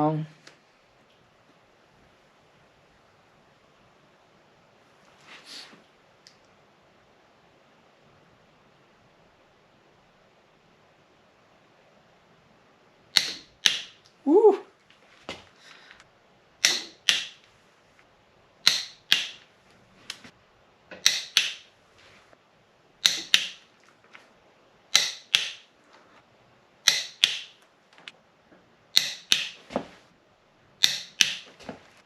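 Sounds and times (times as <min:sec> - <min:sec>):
torque wrench clicking: 0:16.6 - 0:17.4, 0:21.0 - 0:21.6, 0:24.9 - 0:25.6, 0:26.8 - 0:27.5, 0:29.0 - 0:29.6, 0:30.8 - 0:31.4.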